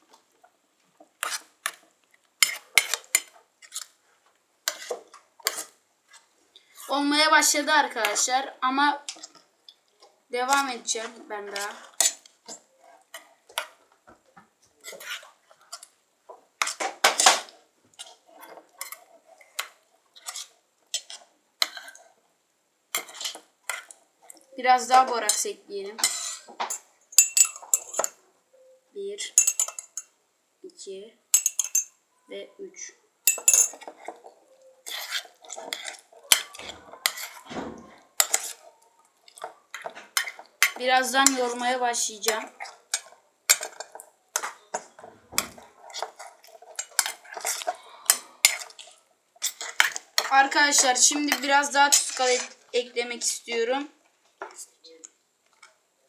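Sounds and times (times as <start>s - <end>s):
spoon clinking against container: 27.2s - 28.1s, 29.4s - 30.1s, 31.3s - 31.9s, 33.3s - 33.9s
utensil scraping a container: 49.4s - 52.6s.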